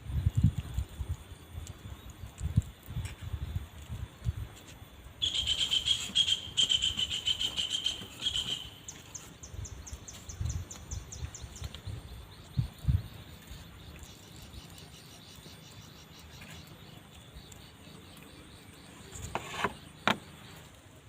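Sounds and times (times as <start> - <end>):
insect rapid pulsing trill: 5.2 - 8.9.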